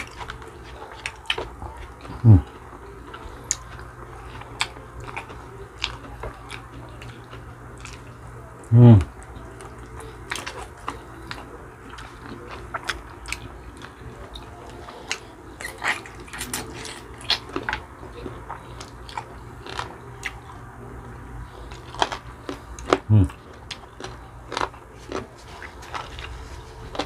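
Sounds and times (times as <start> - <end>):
people chewing and biting: 0.0 - 27.0.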